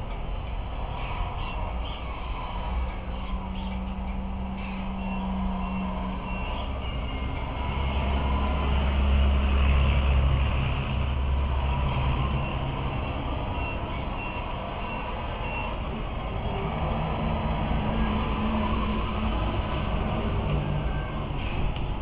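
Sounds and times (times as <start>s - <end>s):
reversing alarm beeping: 4.9s - 8.8s, 11.8s - 17.0s.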